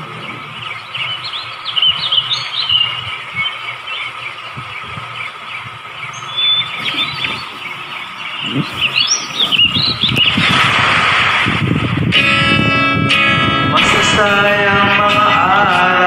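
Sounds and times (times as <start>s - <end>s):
bird-like chirps and squeaks: 6.1s - 10.5s.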